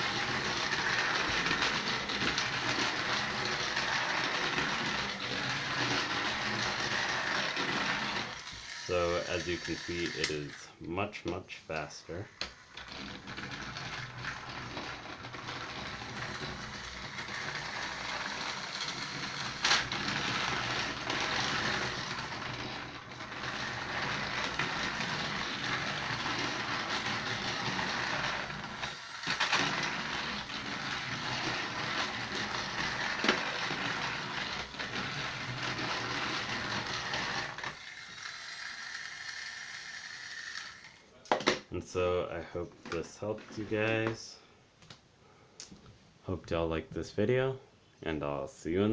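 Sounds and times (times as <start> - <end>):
toy train motor whir: 0.0 - 10.8, 12.1 - 41.3
wheels and gears clattering: 12.8 - 37.8.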